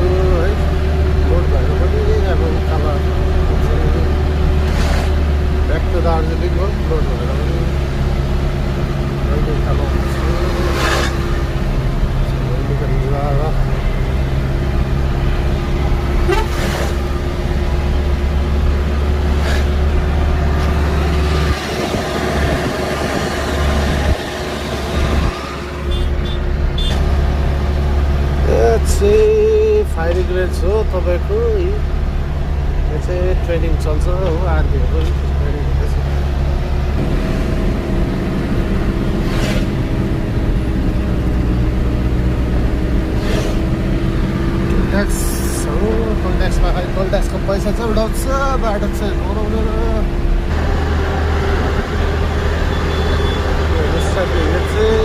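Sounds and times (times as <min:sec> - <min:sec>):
truck engine droning uphill: 0:00.0 - 0:55.0
vehicle horn tooting: 0:16.2 - 0:16.6, 0:25.9 - 0:27.0, 0:52.7 - 0:53.5.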